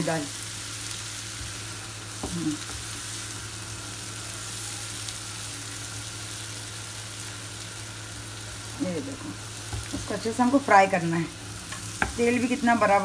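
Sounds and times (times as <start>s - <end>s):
lentils sizzling in oil: 0.0s - 13.0s
spatula stirring in a pan: 9.3s - 10.5s, 11.2s - 13.0s.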